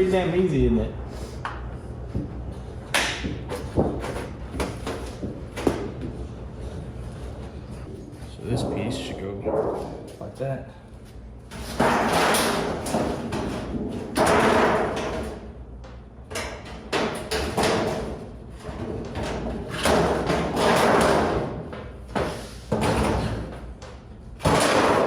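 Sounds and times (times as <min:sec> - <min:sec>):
sheet metal rattling and scraping: 0:11.5 - 0:15.4.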